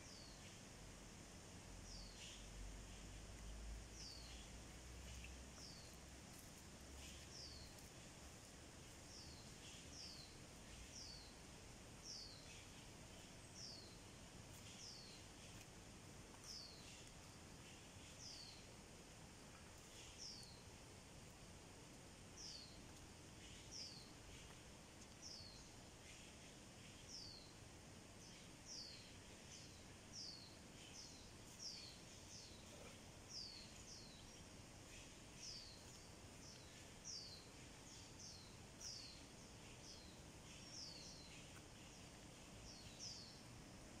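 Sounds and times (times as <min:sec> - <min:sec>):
low steady background hiss: 0:00.0 - 0:44.0.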